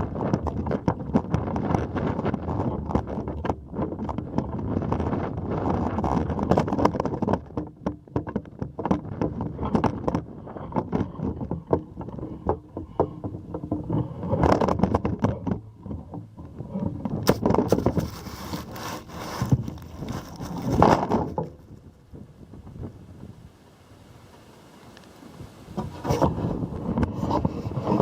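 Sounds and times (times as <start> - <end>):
strong wind buffeting microphone: 0.0 - 7.8, 8.5 - 28.0
scraping: 0.0 - 22.3, 25.6 - 28.0
knocks and clicks: 0.2 - 21.8.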